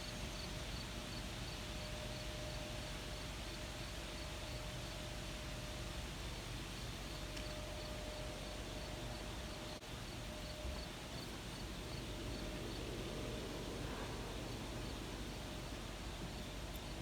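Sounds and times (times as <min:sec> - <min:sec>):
faint steady hum: 0:00.0 - 0:17.0
faint insect chirping: 0:06.7 - 0:17.0.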